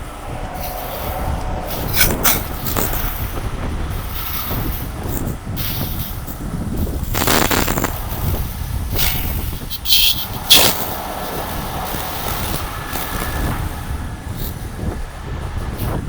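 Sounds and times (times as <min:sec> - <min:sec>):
truck engine rumbling: 0:00.0 - 0:16.0
short hiss: 0:04.0 - 0:13.6.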